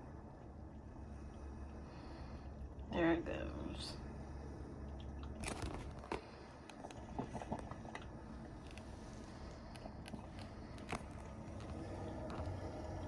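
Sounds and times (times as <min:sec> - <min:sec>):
coffee maker humming: 0:00.0 - 0:13.0.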